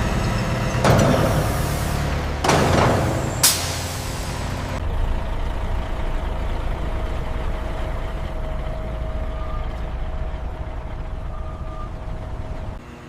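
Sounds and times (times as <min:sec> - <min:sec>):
truck engine idling: 0:00.0 - 0:13.0
faint whine: 0:03.3 - 0:13.0.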